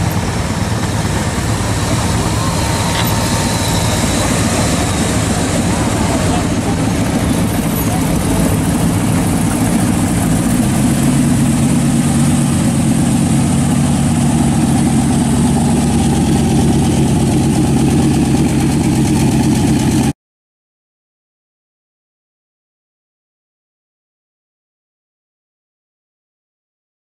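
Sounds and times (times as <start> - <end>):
car engine passing slowly: 0.0 - 20.1.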